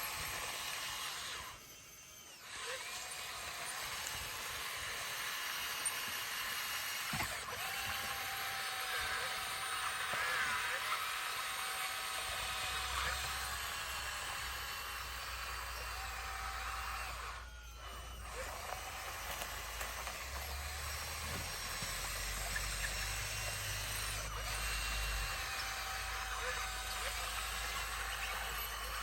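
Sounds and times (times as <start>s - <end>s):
faint wavering whistles: 0.1s - 6.3s
bulldozer engine droning: 12.2s - 29.0s.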